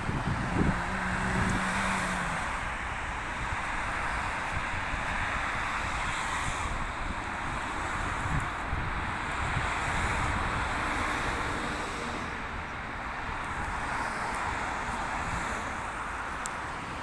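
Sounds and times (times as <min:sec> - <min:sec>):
steady rushing noise: 0:00.0 - 0:12.6.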